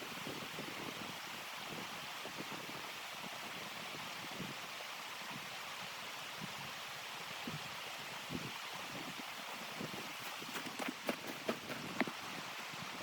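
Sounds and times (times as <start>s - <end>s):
blizzard wind hissing: 7.4s - 13.0s.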